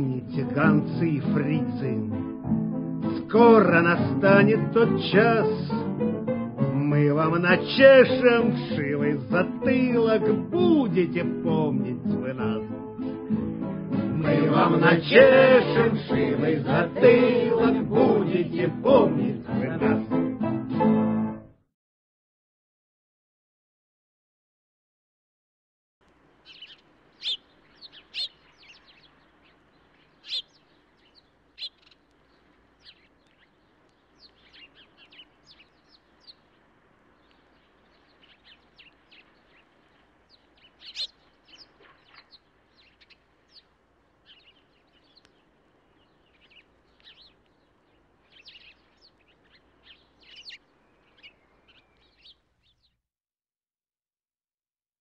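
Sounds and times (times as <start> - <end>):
birds chirping: 26.1 - 53.0.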